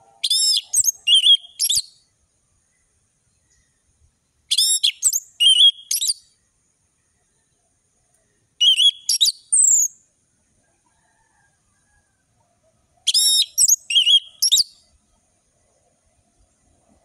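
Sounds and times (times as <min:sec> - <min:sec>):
thrush singing whistled phrases: 0:00.2 - 0:02.1, 0:04.5 - 0:06.3, 0:08.6 - 0:10.0, 0:13.1 - 0:14.8.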